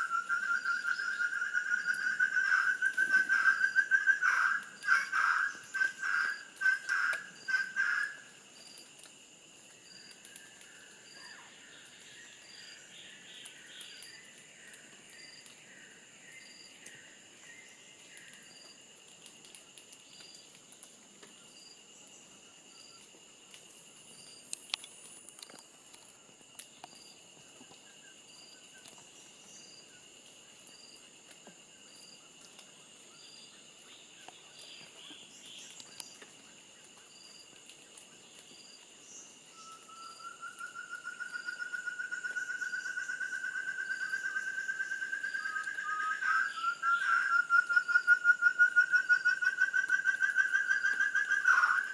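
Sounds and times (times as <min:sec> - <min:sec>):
bird calls: 0:00.0 - 0:08.4, 0:39.2 - 0:51.9
insects trilling: 0:00.0 - 0:51.9
faint clicks and ticks: 0:08.5 - 0:10.9, 0:18.0 - 0:21.4, 0:23.0 - 0:27.9, 0:33.8 - 0:39.0.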